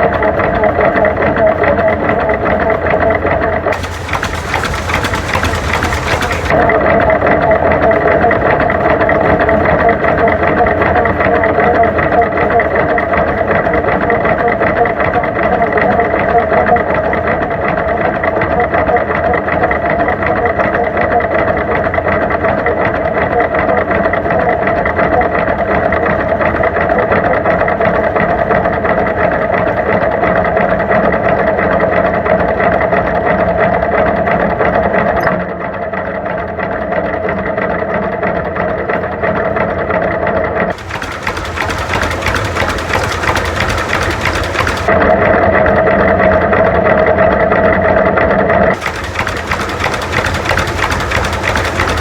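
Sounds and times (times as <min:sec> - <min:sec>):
tractor engine running: 0:03.8 - 0:06.6, 0:40.7 - 0:45.0, 0:48.8 - 0:52.0.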